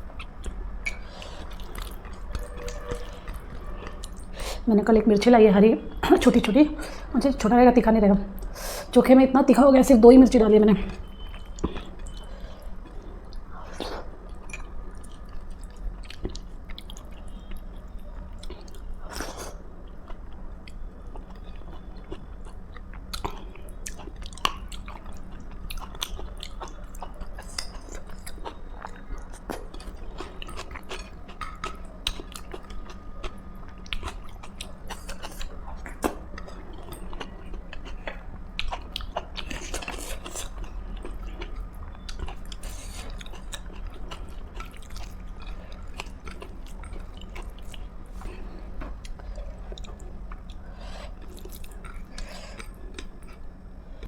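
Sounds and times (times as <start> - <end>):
food crunching: 0.0 - 4.4, 11.0 - 53.8
steady low hum: 0.0 - 54.0
person chewing and biting food: 0.1 - 4.4, 18.4 - 53.5.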